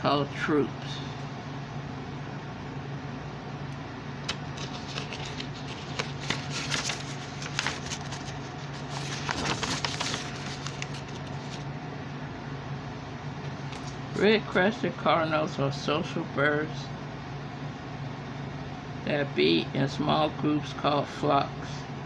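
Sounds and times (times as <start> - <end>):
low room hum: 0.0 - 22.0
rustling handling noises: 4.3 - 11.7.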